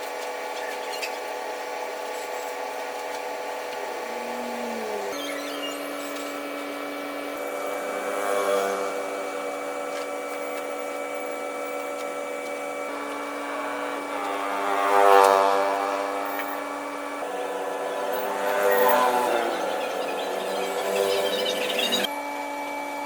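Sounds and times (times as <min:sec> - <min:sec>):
motor humming: 0:00.0 - 0:22.2.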